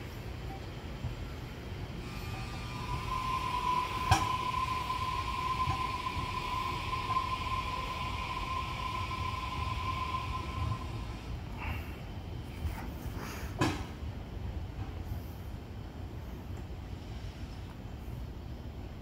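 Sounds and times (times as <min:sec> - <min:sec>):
steady high whine: 0:00.0 - 0:12.4
electric train rumbling: 0:00.0 - 0:19.0.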